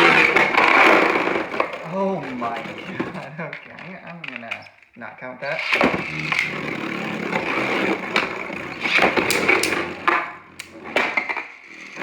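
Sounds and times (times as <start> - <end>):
spinning tops clacking together: 8.8 - 9.9.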